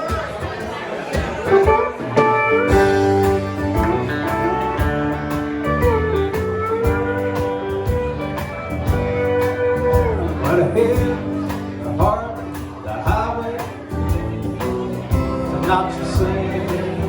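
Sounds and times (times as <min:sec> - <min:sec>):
country band playing: 0:00.0 - 0:17.0
sliding lead guitar line: 0:01.4 - 0:17.0.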